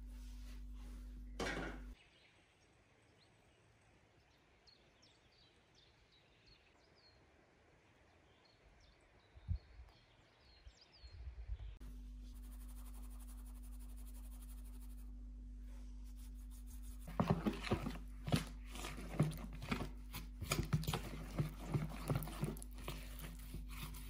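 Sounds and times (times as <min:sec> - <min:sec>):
electrical hum: 0:11.8 - 0:24.0.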